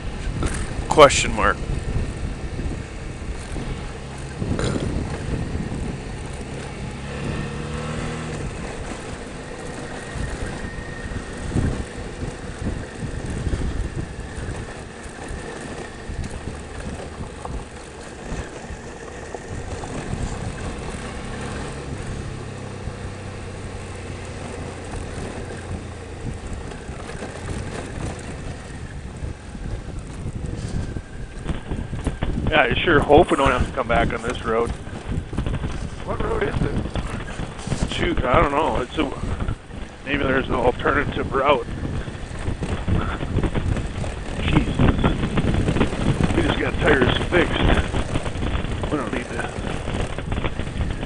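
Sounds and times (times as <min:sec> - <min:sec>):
motorcycle engine running: 0:00.0 - 0:51.0
wind noise on microphone: 0:00.0 - 0:51.0.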